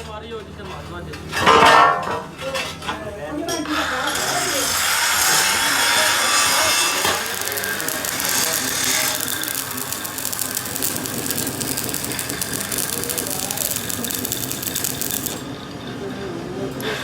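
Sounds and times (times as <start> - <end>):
rapid mechanical clicking and rattling: 5.2 - 15.4.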